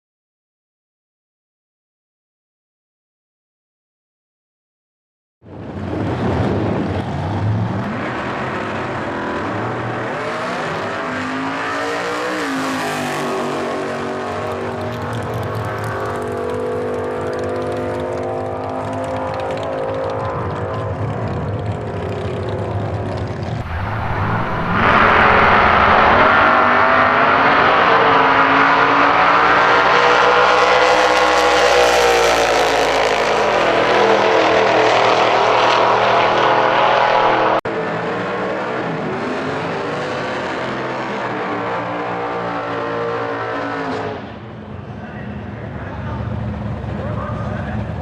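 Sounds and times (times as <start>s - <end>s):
race engine running hard: 5.6s - 48.0s
quieter engine note: 14.8s - 28.0s.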